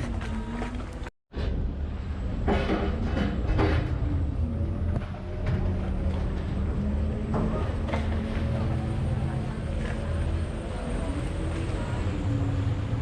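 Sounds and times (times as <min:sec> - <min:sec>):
boat engine humming: 0:00.0 - 0:01.1, 0:04.0 - 0:13.0.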